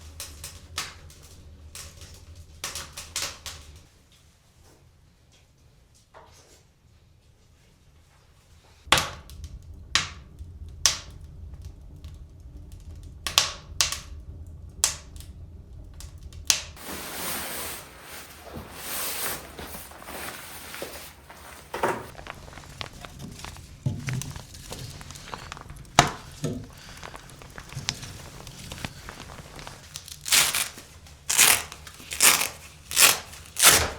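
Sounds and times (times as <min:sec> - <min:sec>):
steady rushing hiss: 0:16.6 - 0:31.3.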